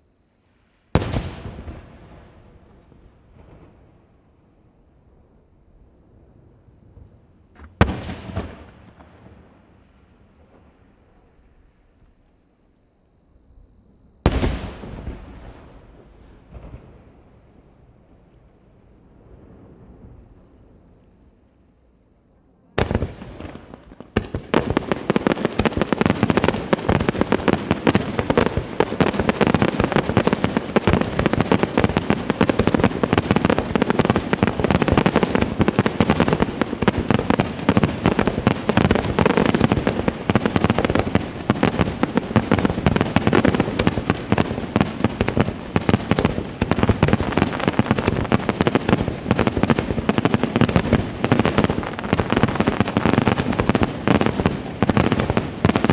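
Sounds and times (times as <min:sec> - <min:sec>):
fireworks barrage of bangs and crackling: 0:00.8 - 0:04.1, 0:06.8 - 0:11.8, 0:14.2 - 0:21.0, 0:22.7 - 0:55.9
firework bang: 0:00.9 - 0:02.4, 0:07.0 - 0:09.4, 0:14.3 - 0:17.0.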